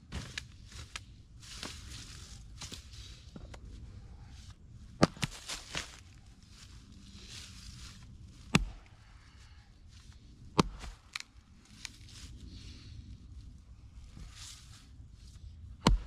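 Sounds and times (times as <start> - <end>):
axe splitting log: 5.0 - 5.4, 8.5 - 8.8, 10.6 - 11.0, 15.8 - 16.0.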